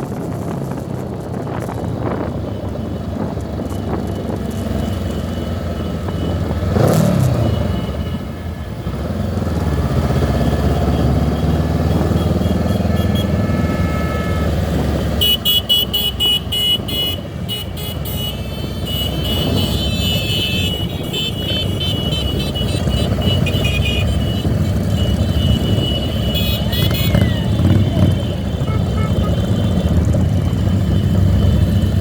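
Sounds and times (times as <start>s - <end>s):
motorcycle and traffic engines: 0.0s - 32.0s
vehicle horns honking: 4.7s - 8.5s, 10.3s - 32.0s.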